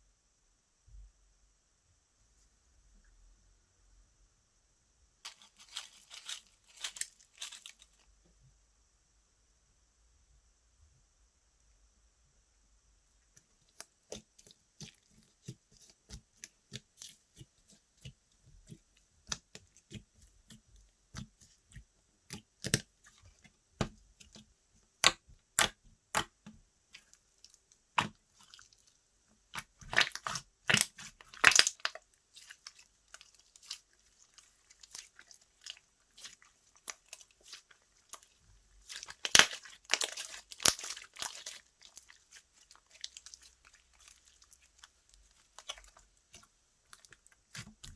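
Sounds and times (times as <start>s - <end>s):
slime squishing with sticky pops: 13.3s - 47.9s.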